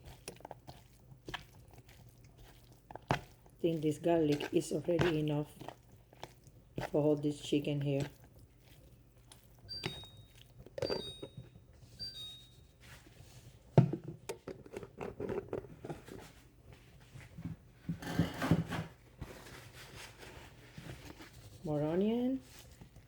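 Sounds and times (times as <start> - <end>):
containers and utensils clinking: 2.4 - 5.8, 9.6 - 12.4.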